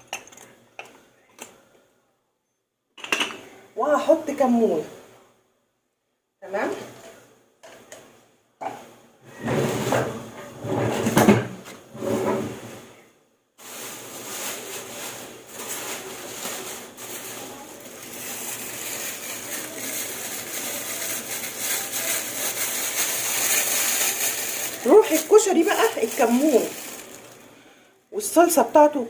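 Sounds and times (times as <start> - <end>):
kitchen knocks and clatter: 3.0 - 3.5, 9.4 - 12.6
pot of water crackling hiss: 13.6 - 27.9.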